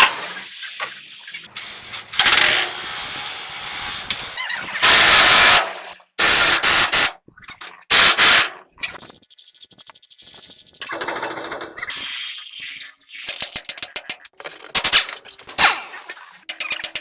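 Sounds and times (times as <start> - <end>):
power tool bursts: 1.5 - 7.1, 7.9 - 8.5.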